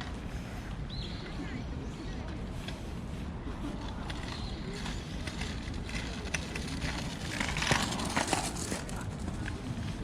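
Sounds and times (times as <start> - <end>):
rustling and crackling: 2.1 - 10.0.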